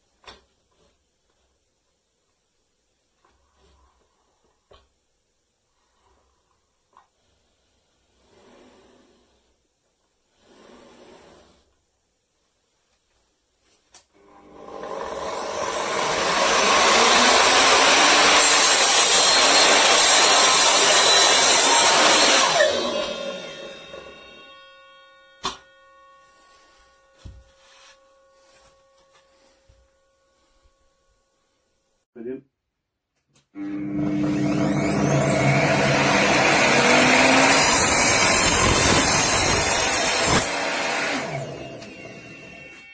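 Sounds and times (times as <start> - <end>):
mitre saw cutting wood: 14.2 - 29.4, 33.7 - 42.8.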